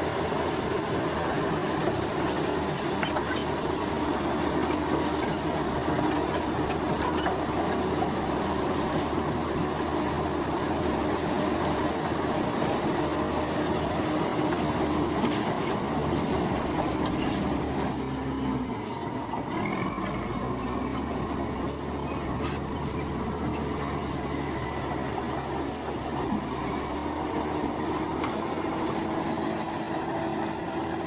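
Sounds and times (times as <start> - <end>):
diesel engine running: 0.0 - 31.0
steel tracks squealing and clanking: 0.0 - 31.0.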